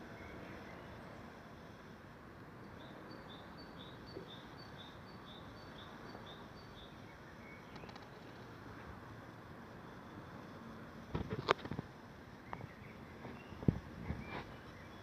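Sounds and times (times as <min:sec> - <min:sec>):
steady background hiss: 0:00.0 - 0:15.0
small bird chirping: 0:12.4 - 0:15.0.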